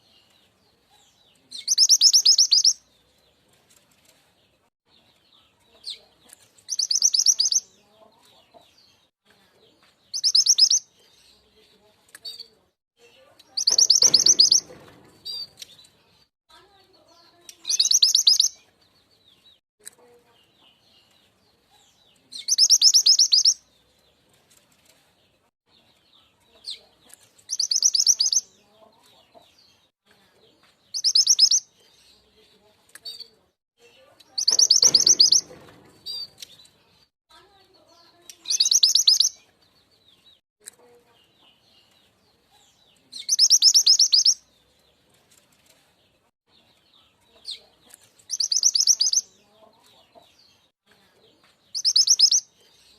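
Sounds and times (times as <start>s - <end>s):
faint small chirps: 5.8s - 7.6s.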